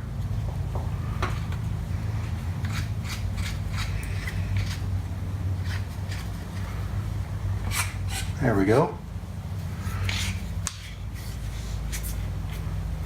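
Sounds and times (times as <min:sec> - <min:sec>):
small metallic clicks and scrapes: 0:02.6 - 0:04.8.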